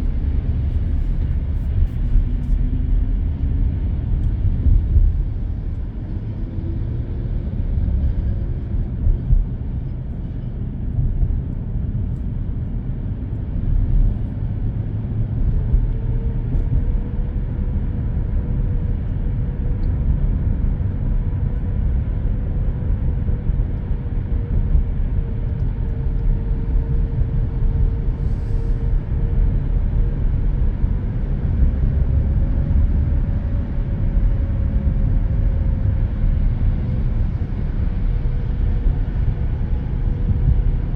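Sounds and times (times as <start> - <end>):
car road and engine rumble: 0.0 - 40.9.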